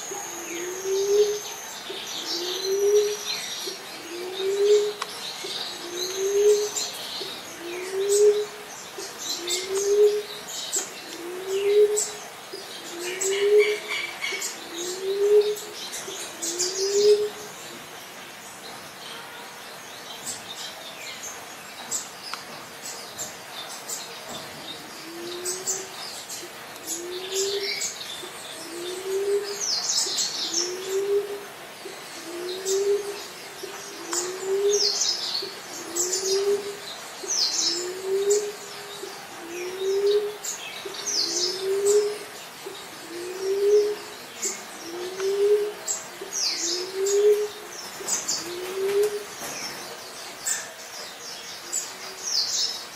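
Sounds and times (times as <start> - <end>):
dove cooing: 0.0 - 17.6, 24.9 - 49.6
birds chirping: 0.0 - 52.9.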